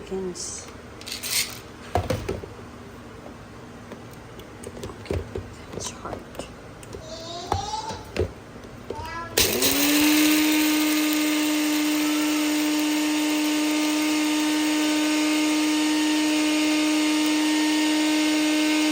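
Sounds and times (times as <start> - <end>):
blender clicks: 9.4 - 18.9
blender grinding coffee beans: 9.4 - 18.9.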